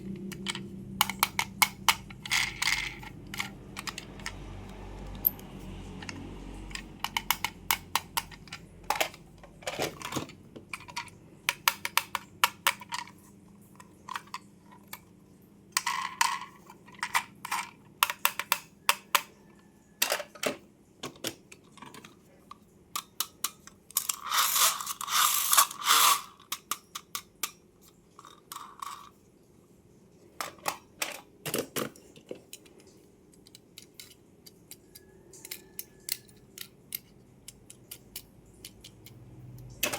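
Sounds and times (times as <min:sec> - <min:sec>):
clicks and taps of plastic toys: 0:06.0 - 0:13.0.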